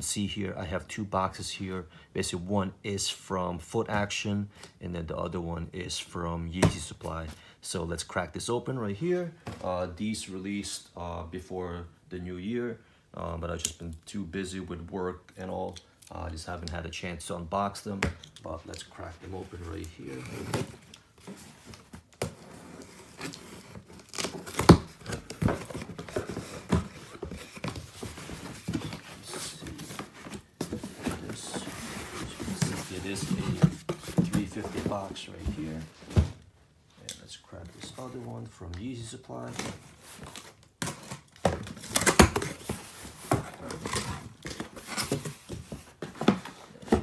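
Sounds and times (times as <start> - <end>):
cardboard box scraping and rustling: 19.0 - 36.4, 39.4 - 47.0.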